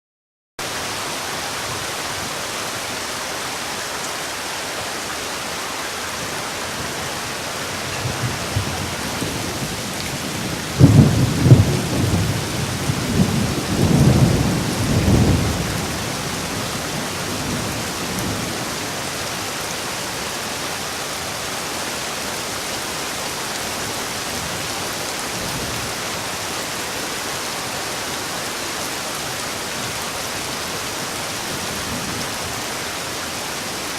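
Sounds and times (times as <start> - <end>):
steady rain: 0.6 - 33.9
low rumble of thunder: 7.8 - 19.0.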